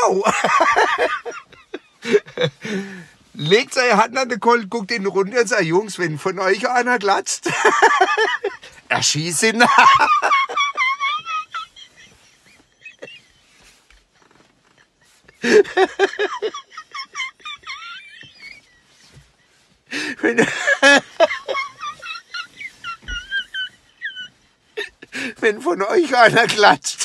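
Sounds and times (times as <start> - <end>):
man laughing in squeaky gasps: 14.8 - 19.0.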